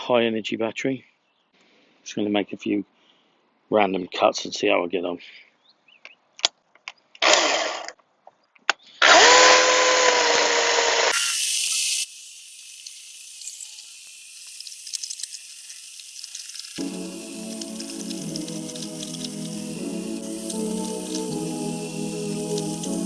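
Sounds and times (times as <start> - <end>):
cordless chainsaw motor whirring: 7.2 - 7.9, 9.0 - 23.0.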